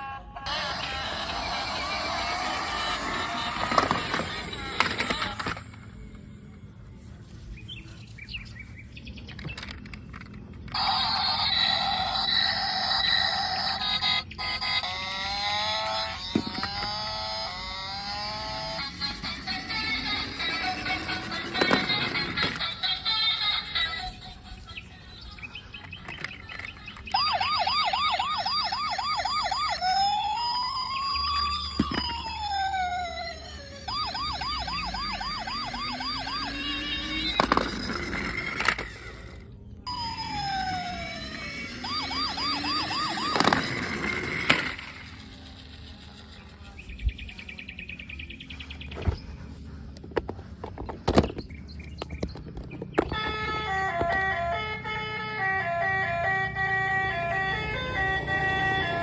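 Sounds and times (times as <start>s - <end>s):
electronic police siren: 0.0s - 6.2s, 9.6s - 24.2s, 26.1s - 46.8s, 52.9s - 59.0s
plastic toy cars knocking: 3.2s - 5.8s, 16.2s - 17.0s, 20.2s - 22.7s, 31.4s - 32.4s, 37.0s - 39.0s, 42.6s - 44.9s, 49.9s - 54.3s
electronic chirping: 25.8s - 39.3s, 39.9s - 49.0s.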